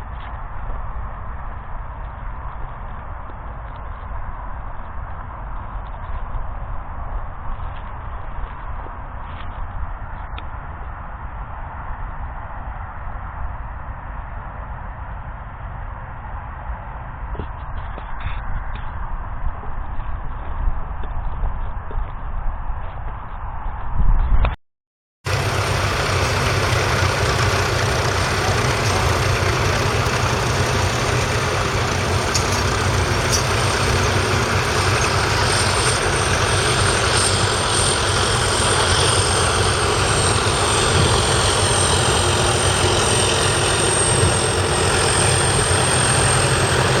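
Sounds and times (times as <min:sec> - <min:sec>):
thin high whine: 0:25.3 - 0:47.0
tractor diesel engine running: 0:25.3 - 0:47.0.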